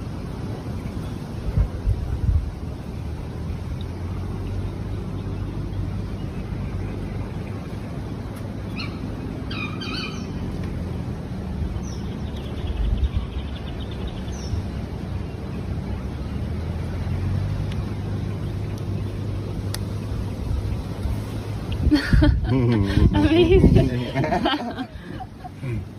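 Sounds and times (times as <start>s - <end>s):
engine humming: 0.0s - 25.9s
bird chirps: 8.6s - 10.6s.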